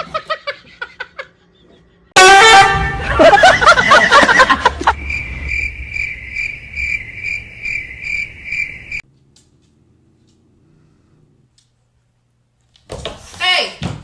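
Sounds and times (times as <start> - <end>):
cricket chirping: 4.8 - 9.0.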